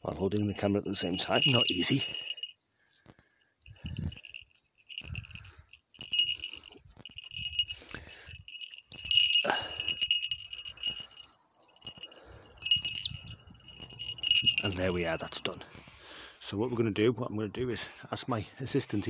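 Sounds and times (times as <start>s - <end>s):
small metal bell jingling: 0.0s - 2.6s, 3.3s - 15.6s
rustling: 0.9s - 2.5s, 3.7s - 15.3s.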